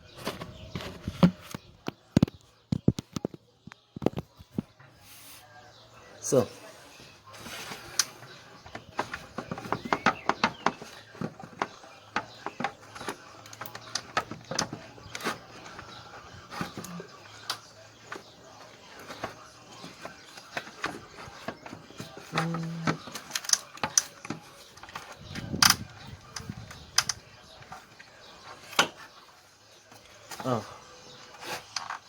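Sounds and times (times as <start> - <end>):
hand tools clicking and knocking: 7.6 - 29.2.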